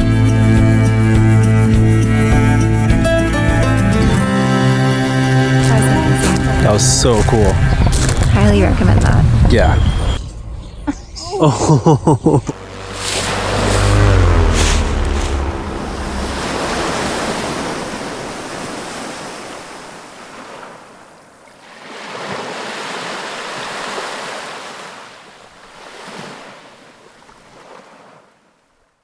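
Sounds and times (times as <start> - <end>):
wind rumble on microphone: 5.7 - 20.1
waves breaking and washing in: 12.4 - 29.0.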